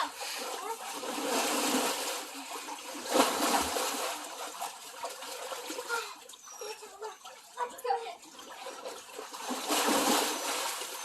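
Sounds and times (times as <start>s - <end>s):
water splashing in a pool: 0.0s - 11.0s
loud splash: 1.0s - 2.3s, 3.0s - 4.6s, 9.4s - 11.0s.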